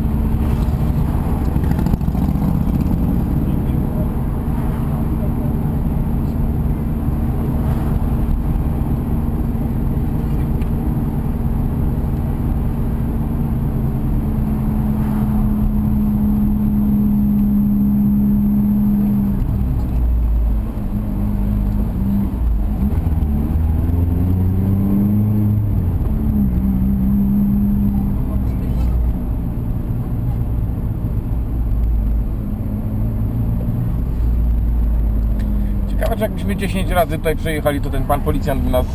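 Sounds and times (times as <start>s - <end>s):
car engine from inside cabin: 0.0s - 38.9s.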